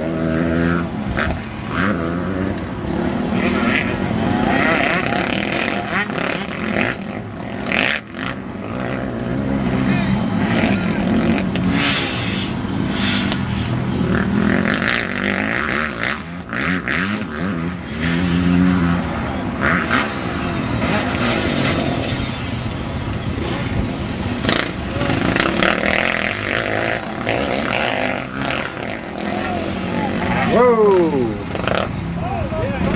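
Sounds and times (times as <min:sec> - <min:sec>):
dirt bike engines revving: 0:00.0 - 0:32.9
people's voices: 0:09.3 - 0:13.7, 0:18.7 - 0:22.2, 0:22.8 - 0:32.9.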